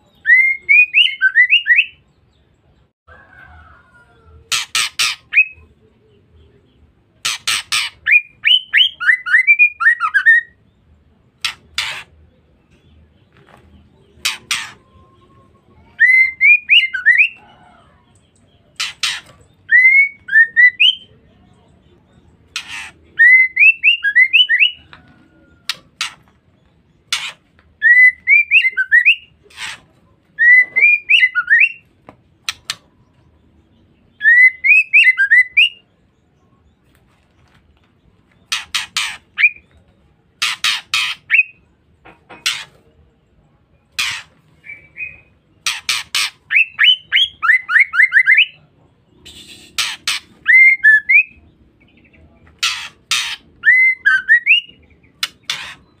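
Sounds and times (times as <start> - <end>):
bird rasping chatter calls: 4.5 - 5.5, 7.2 - 8.2, 11.4 - 12.3, 14.1 - 15.0, 18.7 - 19.6, 22.4 - 23.2, 25.6 - 26.3, 27.0 - 27.5, 29.3 - 30.0, 38.4 - 39.7, 40.4 - 41.4, 42.3 - 42.8, 44.0 - 47.4, 49.2 - 50.5, 52.0 - 53.7, 55.0 - 56.0.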